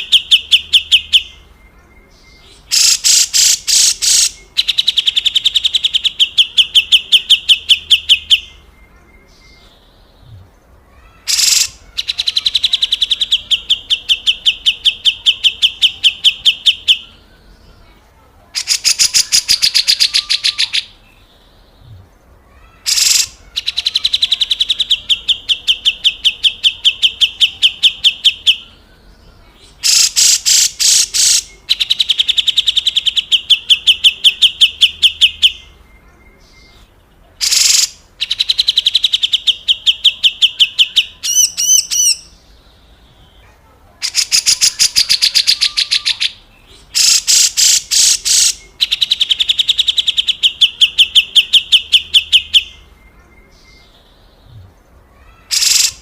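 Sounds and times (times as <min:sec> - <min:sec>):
bird twittering: 0:00.0 - 0:17.3, 0:18.6 - 0:28.8, 0:29.6 - 0:42.5, 0:44.0 - 0:56.0
bulbul harsh rattling calls: 0:02.4 - 0:08.6, 0:10.9 - 0:17.0, 0:18.6 - 0:21.0, 0:22.5 - 0:28.6, 0:29.6 - 0:35.7, 0:37.4 - 0:42.5, 0:44.0 - 0:52.9, 0:55.2 - 0:56.0.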